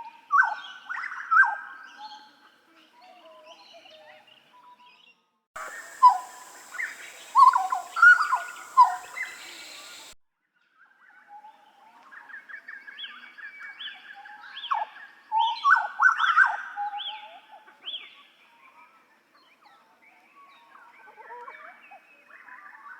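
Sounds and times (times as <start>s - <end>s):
bird twittering calls: 5.6s - 10.2s
bird whistling loud clear notes: 5.6s - 10.2s.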